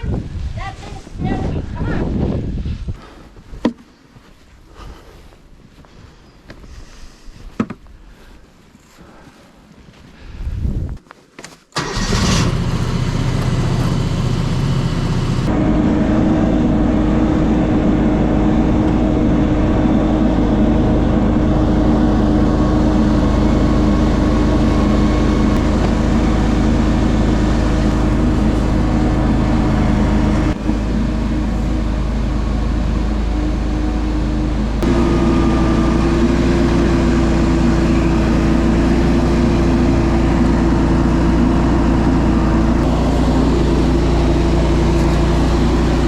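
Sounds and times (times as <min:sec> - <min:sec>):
engine running: 0:11.8 - 0:46.0.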